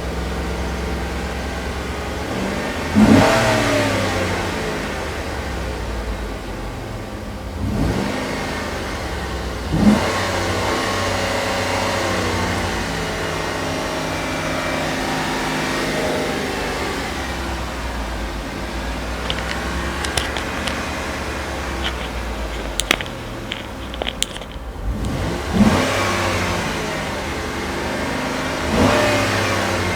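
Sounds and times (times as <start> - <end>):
engine revving: 2.3 - 4.6, 7.6 - 8.7, 9.7 - 12.4, 24.8 - 29.9.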